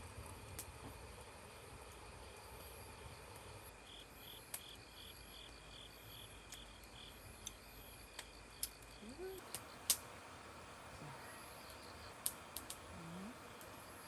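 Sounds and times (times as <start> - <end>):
faint steady hiss: 0.0 - 14.0
cricket chirping: 0.1 - 14.0
faint clicks: 6.4 - 10.1, 11.7 - 13.8.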